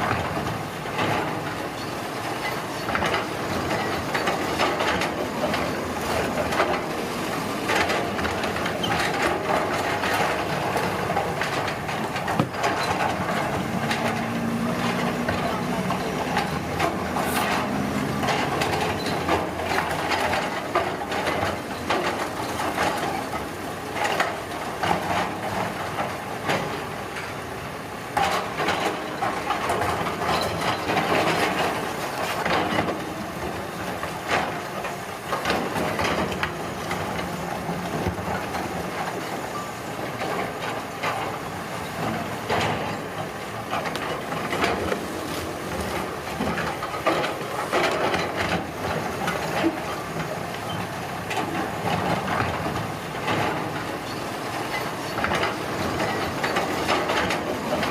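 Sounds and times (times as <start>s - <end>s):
knocks and clatter: 0.0s - 27.4s, 28.1s - 57.9s
heavy machinery running: 0.0s - 57.9s.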